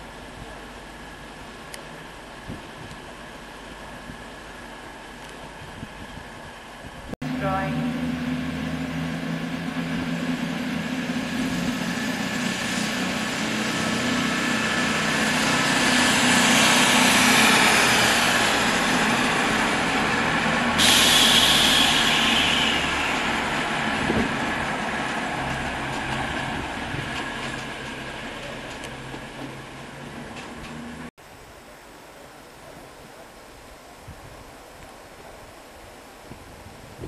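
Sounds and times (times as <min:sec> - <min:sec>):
train noise: 0:00.0 - 0:31.1
air brake hiss: 0:20.8 - 0:22.9.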